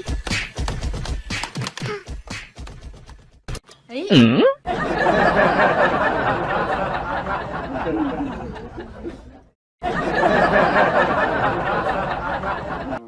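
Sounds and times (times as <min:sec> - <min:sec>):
people laughing: 0:04.6 - 0:13.0.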